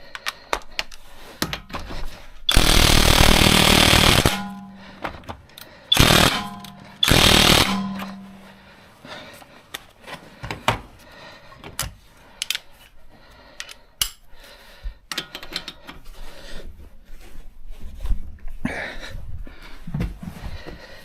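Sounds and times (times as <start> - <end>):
metal tools clicking and clinking: 3.8 - 8.5, 15.1 - 16.0.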